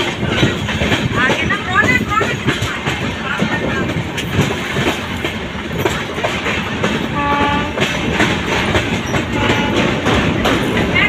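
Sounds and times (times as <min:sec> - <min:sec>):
train wheels rumbling on rails: 0:00.0 - 0:11.0
train horn blast: 0:07.1 - 0:08.1, 0:09.2 - 0:10.2.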